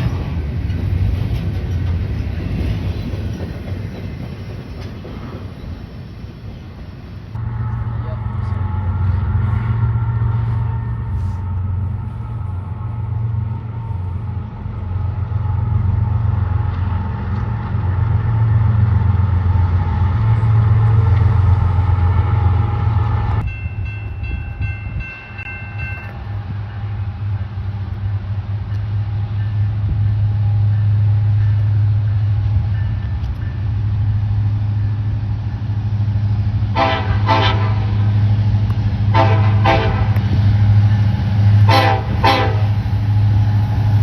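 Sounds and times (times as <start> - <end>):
diesel locomotive rumble: 0.0 - 44.0
train horn chord: 36.7 - 38.2, 39.1 - 40.3, 41.6 - 42.8.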